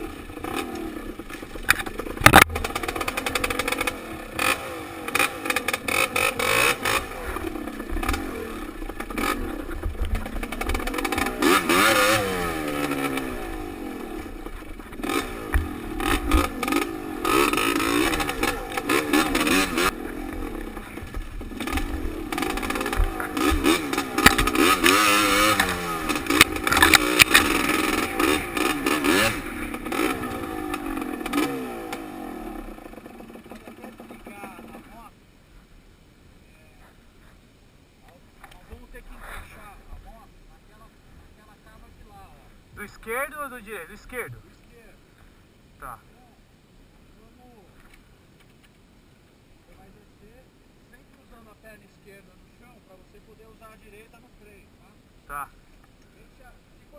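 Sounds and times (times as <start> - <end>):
dirt bike engine revving: 0.0 - 35.1
bike clattering over rough ground: 0.3 - 13.4, 14.2 - 32.1.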